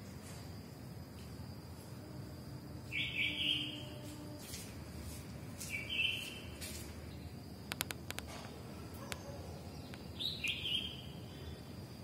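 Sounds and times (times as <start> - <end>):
steady thin high whine: 0.0 - 9.0
sharp ticks: 7.7 - 8.3.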